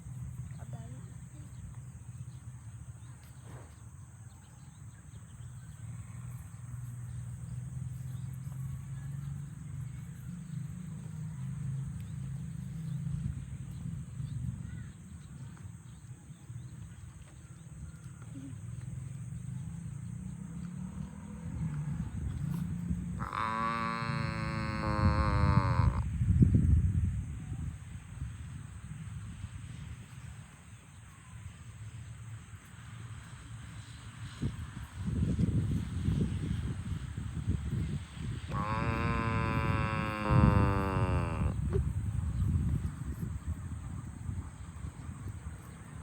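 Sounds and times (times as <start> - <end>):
cattle lowing: 22.5 - 26.0, 38.5 - 42.4
cow mooing: 23.2 - 26.0, 38.5 - 41.8.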